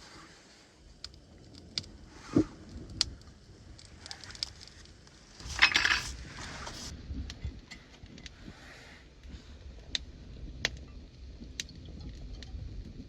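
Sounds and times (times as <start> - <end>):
small hard objects clinking: 5.4 - 6.9.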